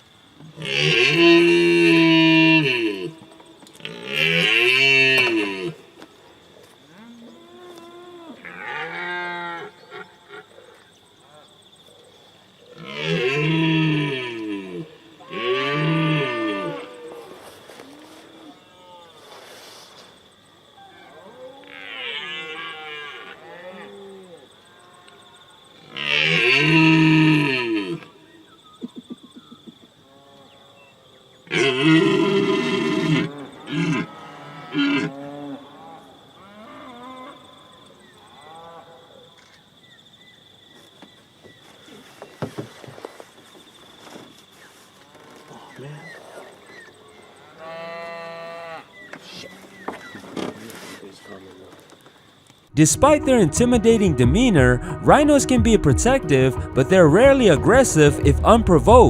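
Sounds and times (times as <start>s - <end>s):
animal mooing: 12.8s - 17.1s, 31.5s - 37.4s.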